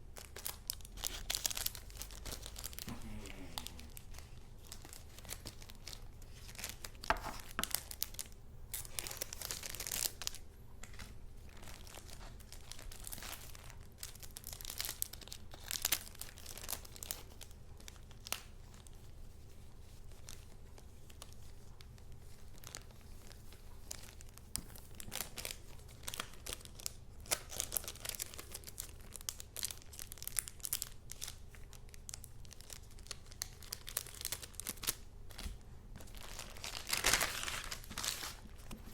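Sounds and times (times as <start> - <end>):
paper rustling and crinkling: 0.2 - 13.8, 29.6 - 38.9.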